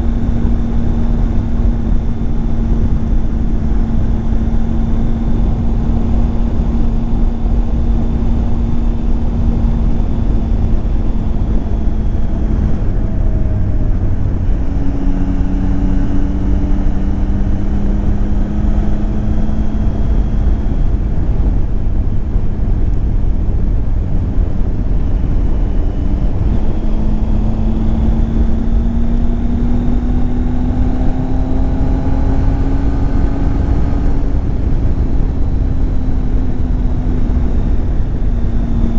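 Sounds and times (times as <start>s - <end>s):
motorcycle engine running: 0.0s - 38.9s
wind rushing over microphone: 0.0s - 38.9s.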